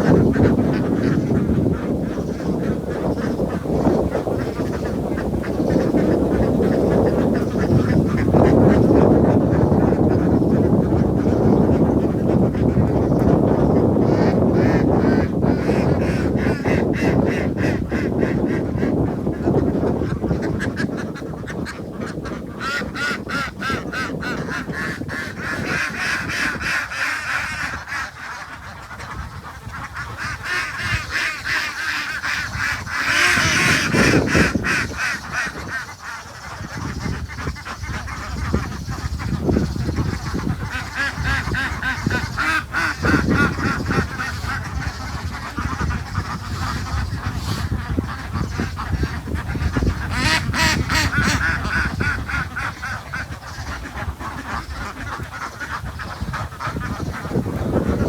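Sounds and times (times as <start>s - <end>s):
waterfowl quacking and honking: 0.0s - 58.0s.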